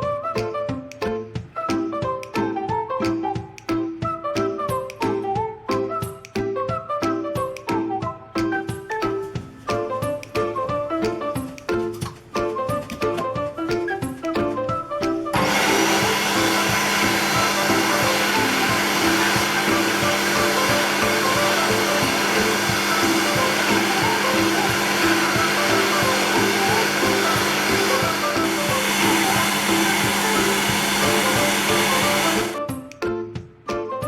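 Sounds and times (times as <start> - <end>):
background music: 0.0 - 34.0
electric hand dryer blowing: 9.0 - 32.6.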